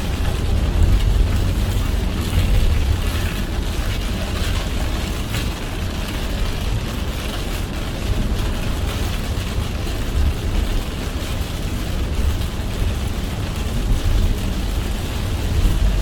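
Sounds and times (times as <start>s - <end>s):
rain and tyre spray hiss: 0.0s - 16.0s
road and engine rumble: 0.0s - 16.0s.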